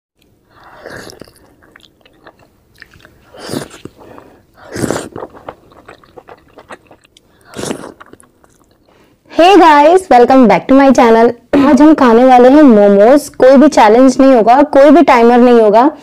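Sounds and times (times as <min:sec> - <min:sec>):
wet mouth clicks: 0:00.2 - 0:08.9
biting and chewing dumplings: 0:00.2 - 0:09.0.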